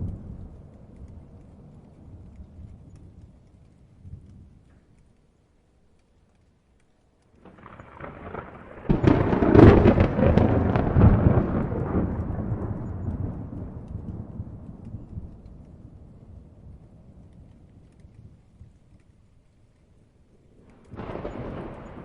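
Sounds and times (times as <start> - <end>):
thunderclap: 7.4 - 18.7, 20.6 - 22.0.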